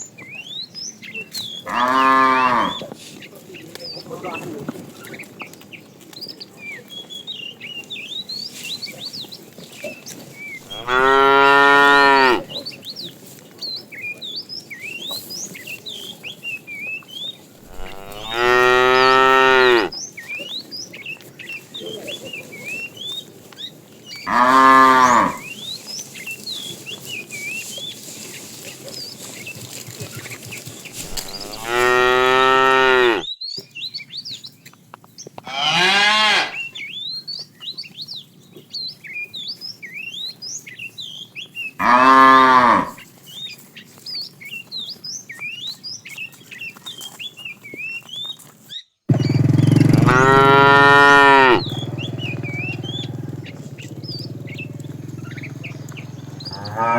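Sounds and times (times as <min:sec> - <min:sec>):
cattle mooing: 0:01.7 - 0:02.8, 0:10.6 - 0:12.5, 0:17.6 - 0:20.0, 0:24.3 - 0:25.5, 0:31.0 - 0:33.3, 0:35.5 - 0:36.6, 0:41.8 - 0:43.0, 0:49.6 - 0:53.7, 0:56.4 - 0:56.9.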